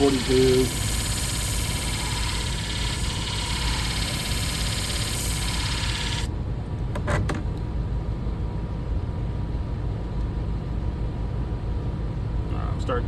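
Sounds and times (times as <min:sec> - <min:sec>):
blade grinding hiss: 0:00.0 - 0:06.3
machine motor humming: 0:00.0 - 0:06.3.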